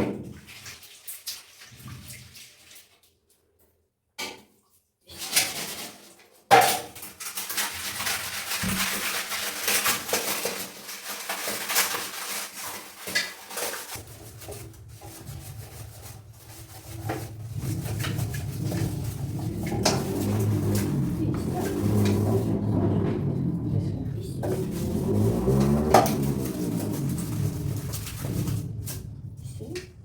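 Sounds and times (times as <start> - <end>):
hard objects clattering and scraping: 5.2 - 30.0
low steady hum: 14.0 - 30.0.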